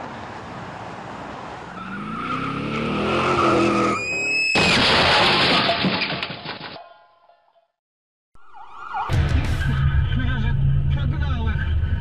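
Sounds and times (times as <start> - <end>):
tyres squealing and skidding: 1.5 - 6.9.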